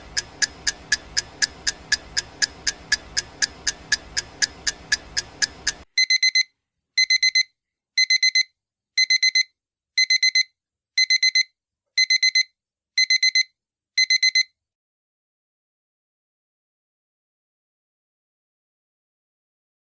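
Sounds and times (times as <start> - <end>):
timer ticking: 0.0 - 14.5
digital alarm beeping: 6.0 - 14.5.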